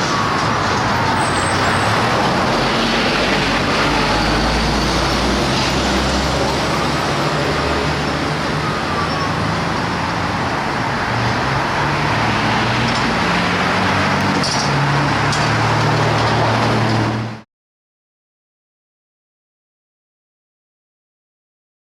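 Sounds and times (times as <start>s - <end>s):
fire truck engine running: 0.0s - 17.4s
road noise: 0.0s - 17.4s.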